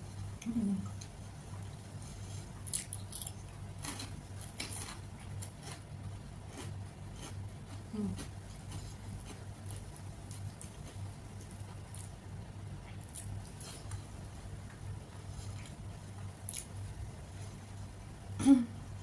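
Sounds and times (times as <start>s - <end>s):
steady low hum: 0.0s - 19.0s
crisp crunching while chewing: 2.1s - 12.3s, 12.9s - 14.1s, 16.4s - 16.8s.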